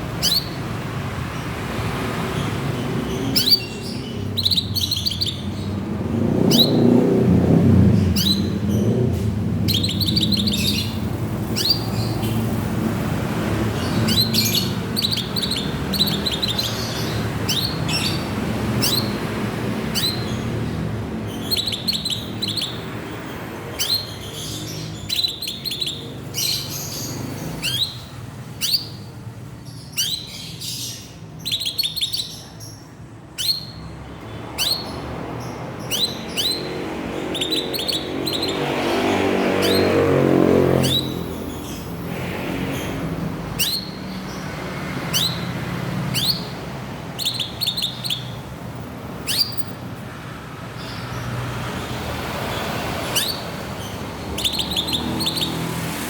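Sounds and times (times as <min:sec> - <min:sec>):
bird chirping: 0:00.0 - 0:56.0.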